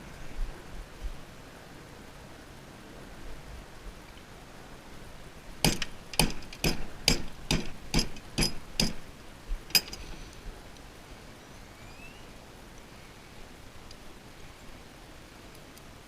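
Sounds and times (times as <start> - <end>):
hammer striking metal: 5.6 - 9.0.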